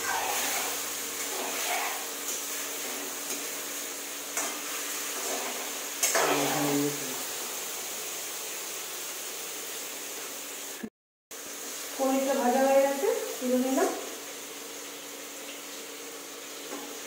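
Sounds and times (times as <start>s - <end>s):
spatula scraping a pan: 0.0s - 6.9s
food sizzling in hot oil: 0.0s - 17.0s.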